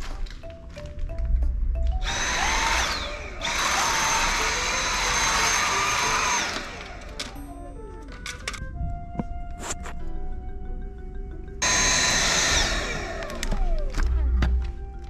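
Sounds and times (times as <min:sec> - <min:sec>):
light background melody: 0:00.0 - 0:15.0
vacuum cleaner motor whining: 0:02.0 - 0:08.5, 0:11.6 - 0:15.0.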